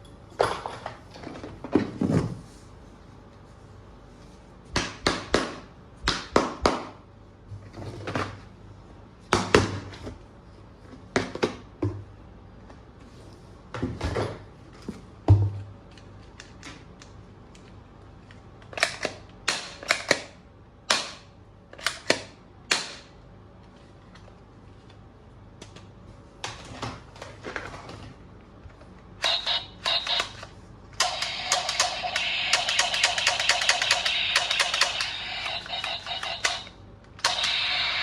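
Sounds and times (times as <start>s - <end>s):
plastic toy guns clicking: 31.0s - 37.6s.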